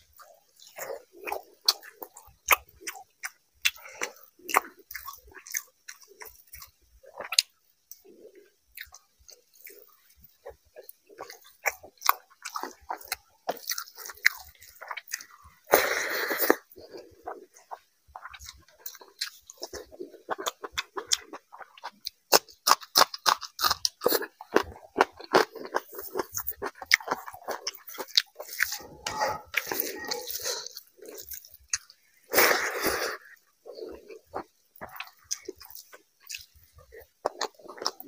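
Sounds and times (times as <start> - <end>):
wet chewing and lip smacks: 0.1 - 15.4, 33.7 - 38.0.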